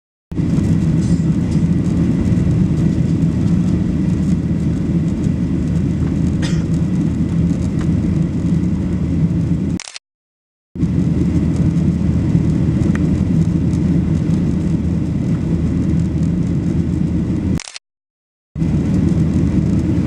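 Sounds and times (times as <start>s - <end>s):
jet engines rumbling on takeoff: 0.3s - 9.8s, 10.8s - 17.7s, 18.6s - 20.0s.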